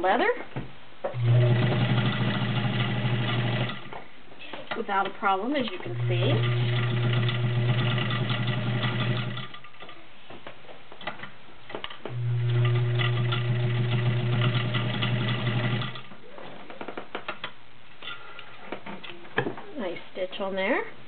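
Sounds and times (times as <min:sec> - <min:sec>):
sewing machine stitching leather: 0:01.2 - 0:03.9, 0:05.9 - 0:09.7, 0:12.1 - 0:16.1.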